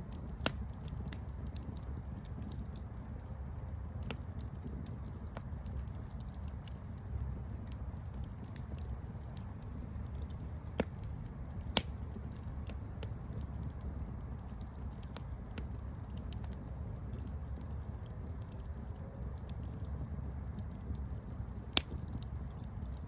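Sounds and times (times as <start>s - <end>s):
campfire flames rumbling: 0.0s - 23.0s
fire crackling and popping: 0.0s - 23.0s.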